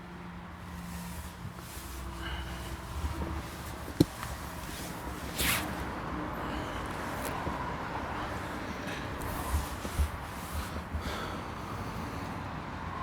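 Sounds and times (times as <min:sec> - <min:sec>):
low steady background noise: 0:00.0 - 0:13.0
rustling swish: 0:00.7 - 0:05.9, 0:09.2 - 0:11.0.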